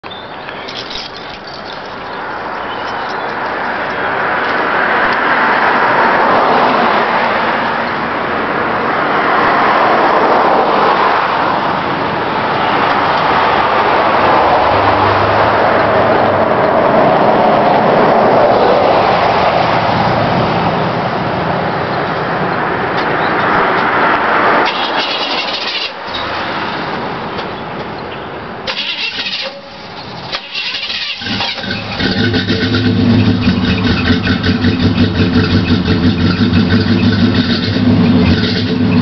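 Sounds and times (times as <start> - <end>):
pickup truck engine cold start: 24.6 - 26.7, 28.7 - 39.0.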